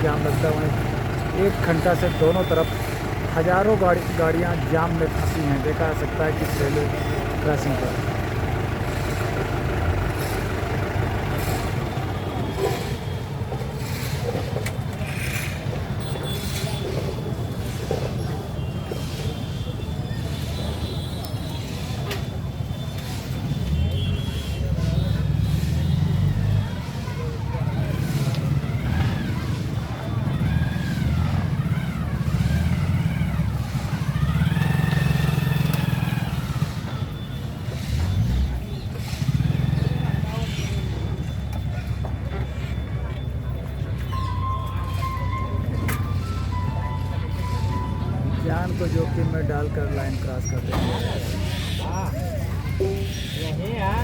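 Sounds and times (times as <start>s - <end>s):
vehicle engines idling: 0.0s - 54.0s.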